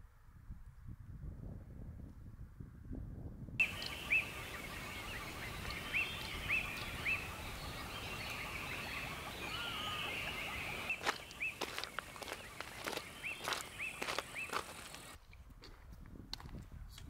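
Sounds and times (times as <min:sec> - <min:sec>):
sharp clicks: 0:03.6 - 0:04.0
bird chirping: 0:03.6 - 0:15.2
outdoor hiss: 0:03.6 - 0:15.2.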